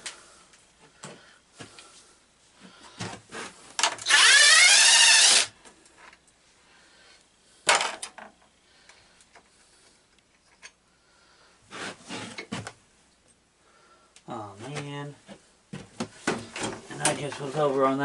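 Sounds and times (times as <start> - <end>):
power tool motor whine: 4.0 - 5.5.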